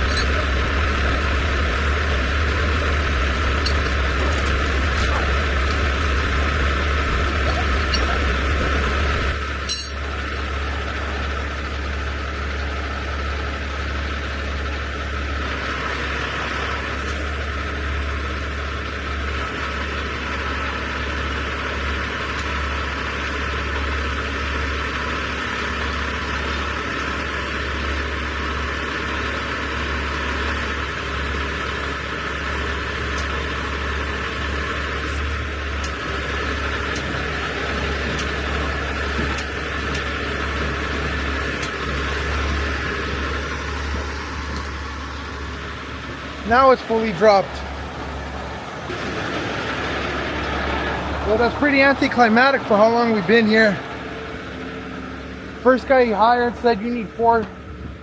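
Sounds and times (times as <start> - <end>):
high whine: 0.0 - 11.5
diesel truck engine rumbling: 0.0 - 58.0.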